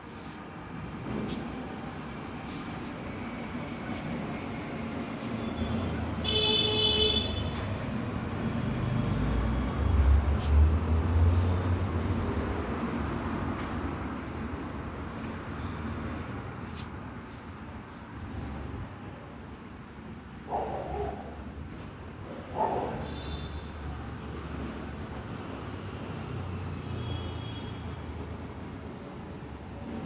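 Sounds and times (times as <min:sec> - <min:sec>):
vehicle horn toot: 0:05.6 - 0:07.6
vehicle rumbling past: 0:07.2 - 0:16.6.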